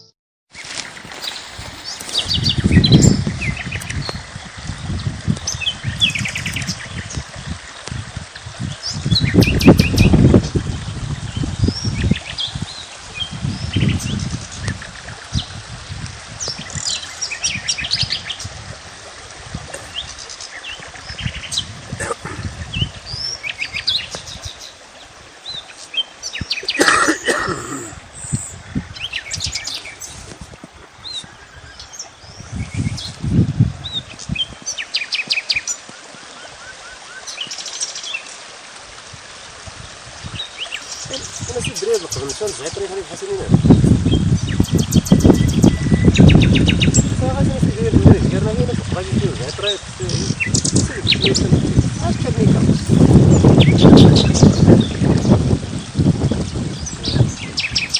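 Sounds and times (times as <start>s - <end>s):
small birds chirping: 0.0s - 7.2s, 8.6s - 10.2s, 27.6s - 30.4s, 31.0s - 38.3s, 39.8s - 48.2s, 49.0s - 57.9s.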